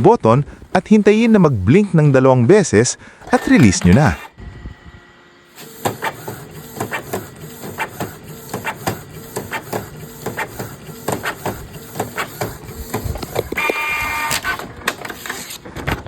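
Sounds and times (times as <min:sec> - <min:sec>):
printer motors humming: 0:00.5 - 0:02.5, 0:03.2 - 0:15.6
printer mechanism clicks and knocks: 0:05.8 - 0:15.1.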